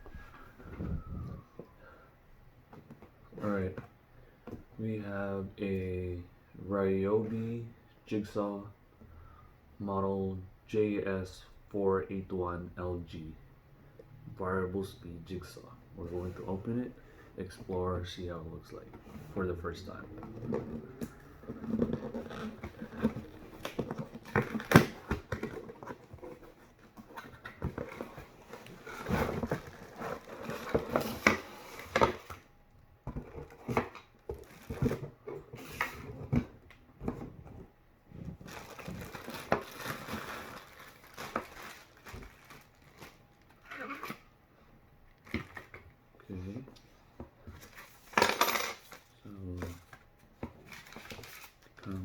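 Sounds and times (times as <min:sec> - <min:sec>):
cardboard and plastic rustling: 0:17.5 - 0:43.7, 0:47.2 - 0:52.0.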